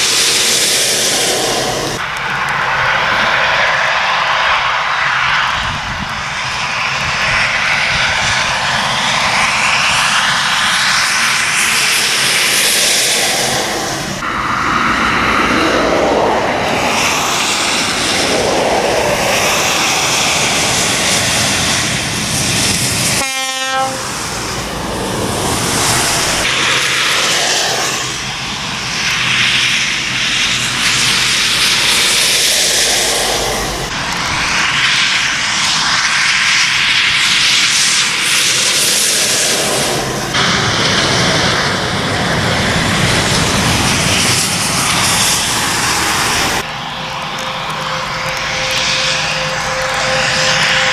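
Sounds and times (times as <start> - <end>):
trucks passing on wet road: 0.0 - 50.9
truck horn blast: 23.1 - 24.2, 46.6 - 50.9.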